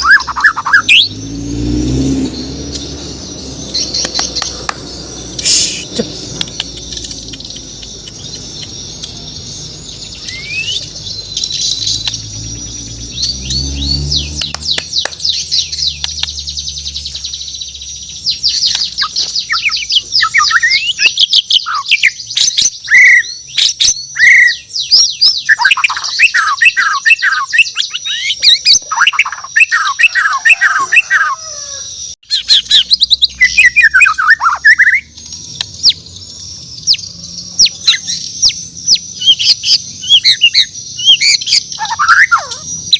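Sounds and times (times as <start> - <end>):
bird singing chirps and trills: 0.0 - 42.9.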